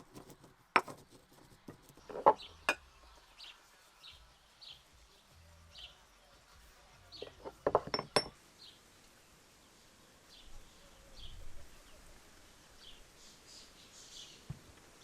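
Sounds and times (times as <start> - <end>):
kitchenware clinking: 0.0 - 2.8, 7.2 - 8.4.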